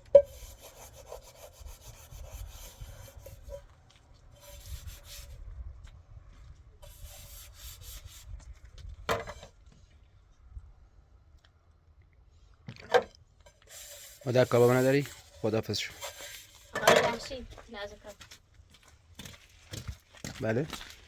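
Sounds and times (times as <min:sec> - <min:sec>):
rasping scraping strokes: 0:00.2 - 0:03.7, 0:04.3 - 0:05.4, 0:06.8 - 0:08.4, 0:13.5 - 0:17.3.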